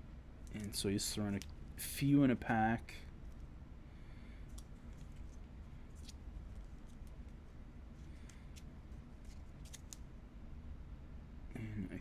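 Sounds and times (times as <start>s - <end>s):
steady low hum: 0.0s - 12.0s
cards clicking and rustling: 0.4s - 1.5s, 4.5s - 7.4s, 8.0s - 10.1s.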